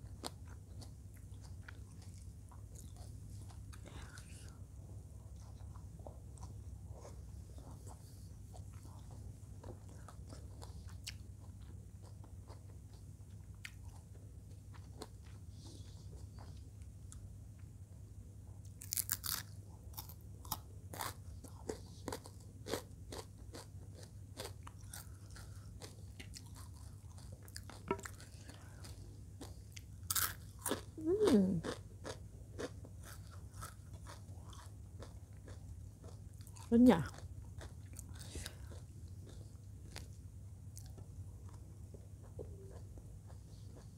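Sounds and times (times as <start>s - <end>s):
soft chewing and mouth clicks: 0.0s - 17.8s, 18.5s - 43.9s
loud crunching while chewing: 18.8s - 40.2s.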